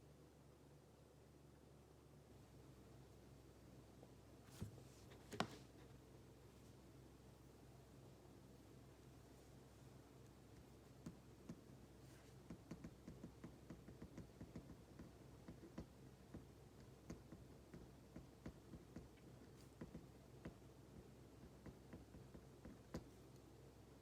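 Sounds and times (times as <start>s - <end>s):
light clicks and taps: 12.4s - 23.5s.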